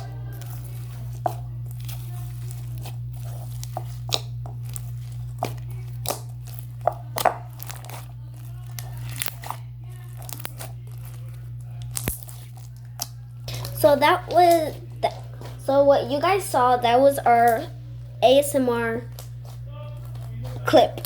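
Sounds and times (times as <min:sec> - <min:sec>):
slime squished by hand: 0:00.0 - 0:15.6.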